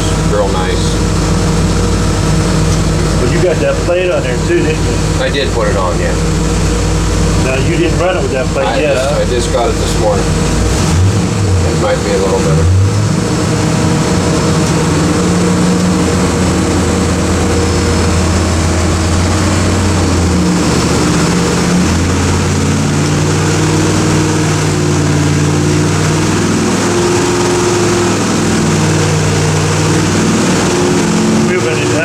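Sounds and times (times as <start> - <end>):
vee-eight engine running: 0.0 - 32.0.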